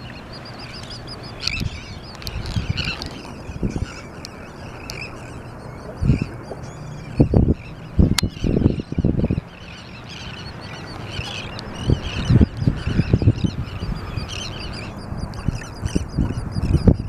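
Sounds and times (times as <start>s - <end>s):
seabirds calling: 0.0s - 17.0s.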